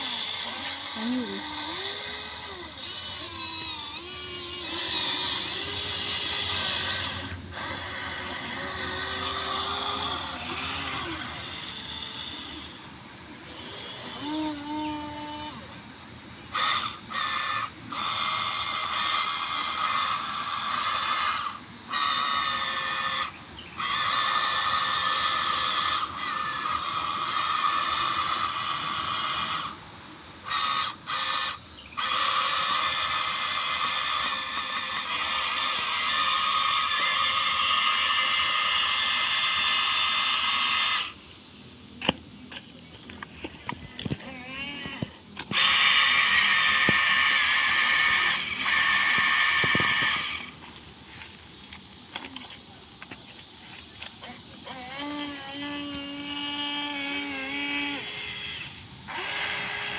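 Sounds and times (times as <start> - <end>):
electric motors whining: 0.0 - 15.6, 41.9 - 51.2, 54.2 - 59.9
high hiss: 0.0 - 59.9.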